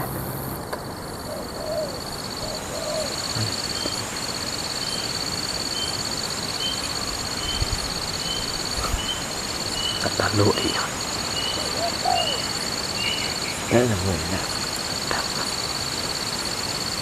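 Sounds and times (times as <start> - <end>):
faint chirps: 0.0 - 17.0
high insect drone: 0.0 - 17.0
dove cooing: 1.1 - 5.1, 6.6 - 16.0.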